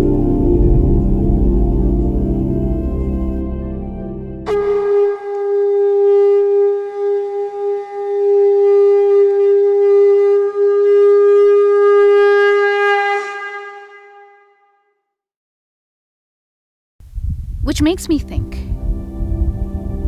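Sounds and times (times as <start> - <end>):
horn blast: 0.0 - 14.8.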